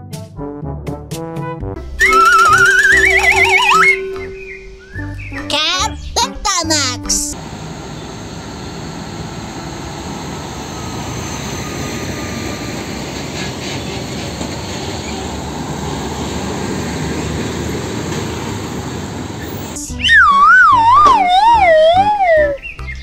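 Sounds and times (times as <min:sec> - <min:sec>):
trucks passing: 0:01.9 - 0:05.2, 0:06.6 - 0:22.6
motorcycles passing: 0:07.4 - 0:19.8.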